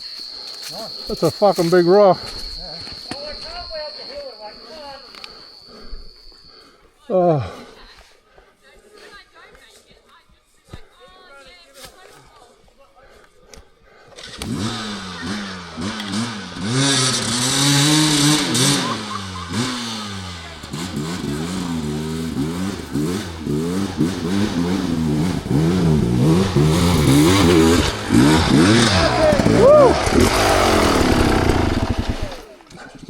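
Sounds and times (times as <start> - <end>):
dirt bike engine revving: 14.2 - 32.6.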